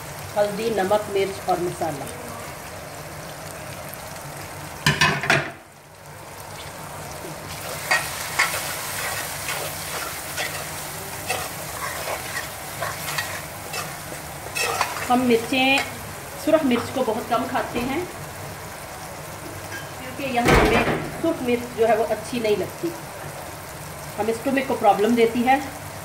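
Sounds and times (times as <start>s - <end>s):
vegetables sizzling in oil: 0.0s - 26.0s
metal spoon scraping a pan: 7.6s - 16.0s.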